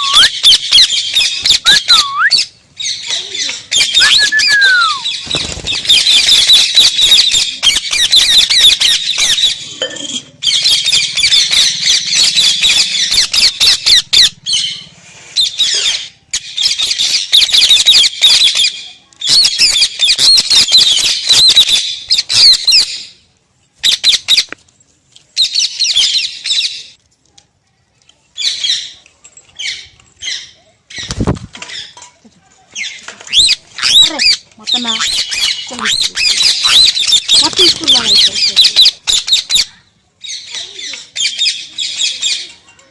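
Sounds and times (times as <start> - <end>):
parrot chattering and squawking: 15.5 - 22.9, 33.3 - 39.8.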